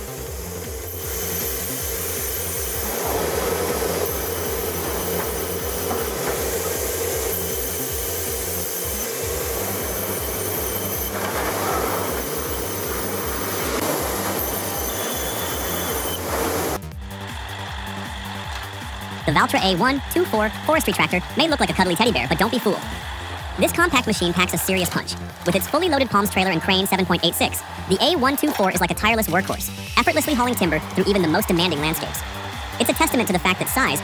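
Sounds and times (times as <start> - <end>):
high whining tones: 0.0 - 17.0
band saw machine noise: 0.0 - 34.0.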